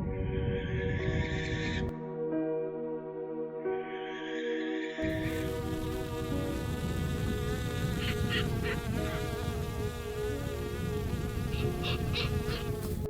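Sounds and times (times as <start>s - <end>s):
honeybees buzzing: 5.0s - 13.0s.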